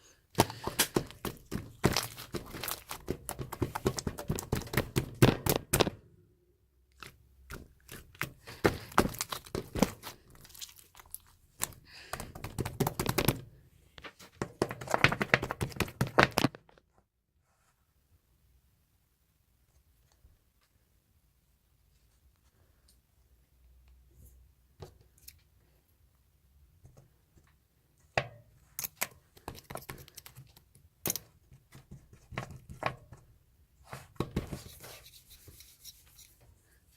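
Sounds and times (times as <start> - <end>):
slime being squished by hand: 0.4 - 5.8, 6.9 - 13.4.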